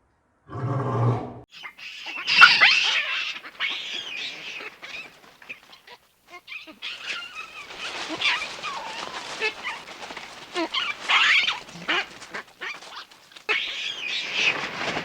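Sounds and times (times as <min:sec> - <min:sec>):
animal deep roar-like call: 0:00.5 - 0:01.4
high-pitched squeaks and chirps: 0:01.5 - 0:15.0.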